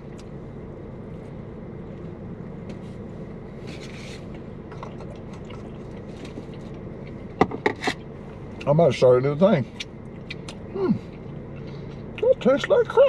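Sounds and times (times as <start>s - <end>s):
car engine idling: 0.0s - 13.0s
chewing and wet mouth sounds: 4.7s - 7.4s, 9.7s - 13.0s.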